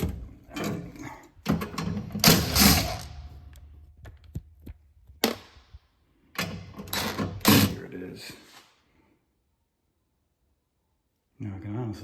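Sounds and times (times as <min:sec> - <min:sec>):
loud scraping rattle: 0:00.0 - 0:03.4
metal knocks and clicks: 0:00.0 - 0:05.5.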